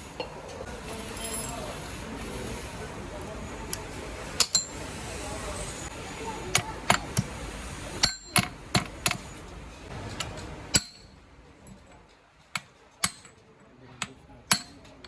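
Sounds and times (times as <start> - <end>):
metal tools clinking: 0.9 - 1.8, 4.4 - 4.8.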